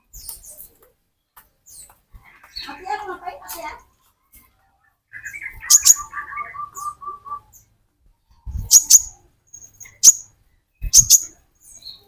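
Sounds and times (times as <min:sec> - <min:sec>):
sunbird calling: 0:05.1 - 0:07.6.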